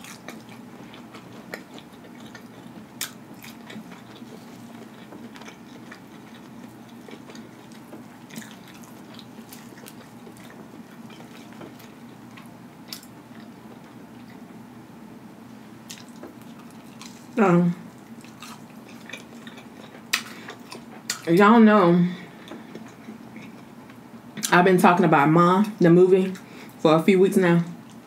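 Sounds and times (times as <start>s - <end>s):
person chewing fried food: 0.0s - 14.5s, 15.8s - 21.3s, 22.3s - 24.5s
steady low hum: 0.0s - 28.0s.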